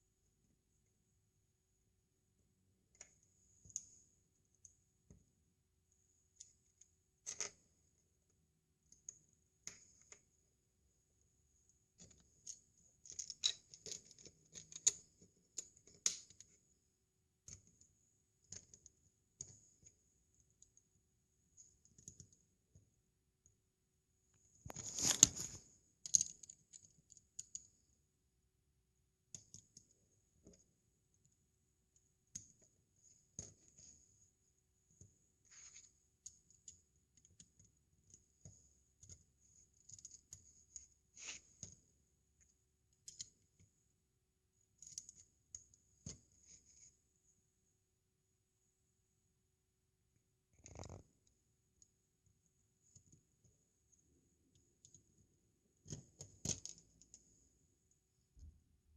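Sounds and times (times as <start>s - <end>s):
plastic bricks clicking: 26.0s - 27.6s.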